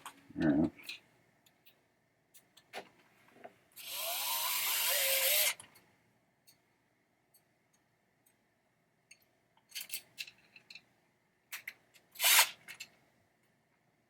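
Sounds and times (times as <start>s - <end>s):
light clicks of parts handled: 0.8s - 3.6s, 9.0s - 10.9s
power screwdriver whine: 3.8s - 5.6s, 12.2s - 12.6s.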